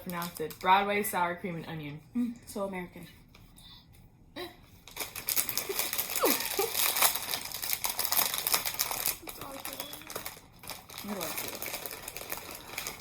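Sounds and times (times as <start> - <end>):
plastic chip bag crinkling: 0.0 - 0.9, 4.8 - 13.0.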